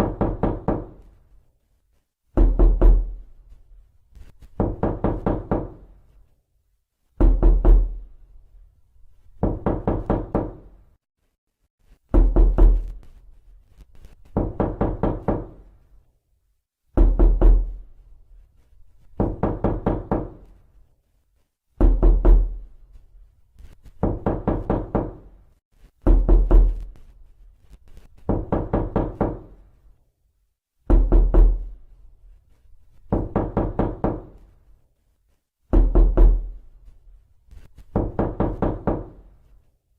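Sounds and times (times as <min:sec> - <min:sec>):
knocking on a door: 0:00.0 - 0:01.0, 0:02.3 - 0:03.2, 0:04.5 - 0:05.9, 0:07.2 - 0:08.1, 0:09.4 - 0:10.8, 0:12.1 - 0:13.0, 0:14.3 - 0:15.7, 0:16.9 - 0:17.8, 0:19.2 - 0:20.5, 0:21.8 - 0:22.7, 0:24.0 - 0:25.3, 0:26.0 - 0:27.0, 0:28.2 - 0:29.6, 0:30.8 - 0:31.7, 0:33.1 - 0:34.4, 0:35.7 - 0:36.6, 0:37.9 - 0:39.3.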